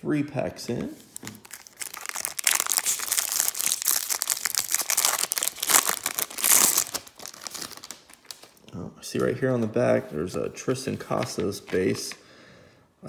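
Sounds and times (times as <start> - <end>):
foil wrapper crinkling and tearing: 1.2 - 8.6.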